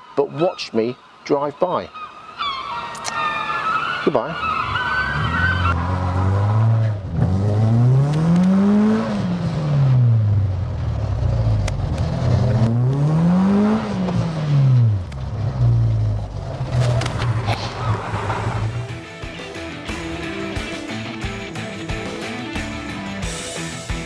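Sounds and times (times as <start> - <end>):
car engine accelerating: 4.4 - 19.1.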